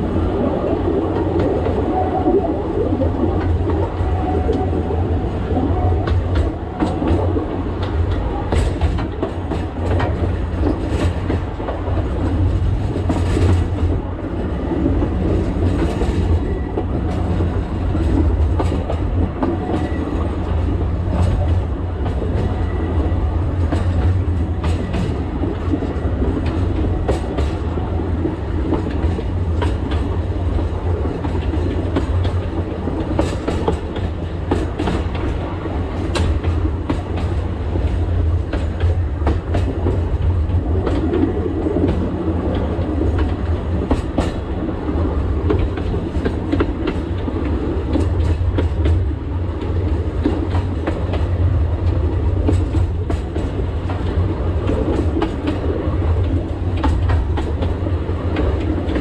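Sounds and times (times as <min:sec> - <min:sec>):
train low rumble: 0:00.0 - 0:59.0
wheels clicking over rail joints: 0:23.5 - 0:59.0.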